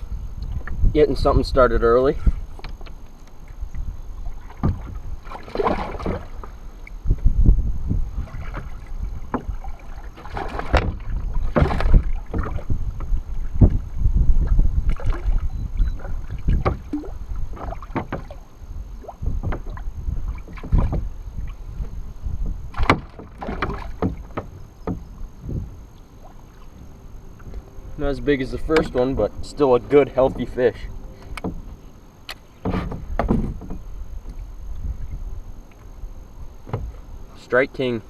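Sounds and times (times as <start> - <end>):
wind rumble: 0.0 - 37.4
water splashing: 4.2 - 7.0, 8.1 - 21.8, 22.6 - 25.3
knocks and bumps on a kayak: 4.4 - 18.4, 19.0 - 25.8, 32.4 - 34.4, 36.6 - 37.1
microphone handling noise: 10.6 - 17.7.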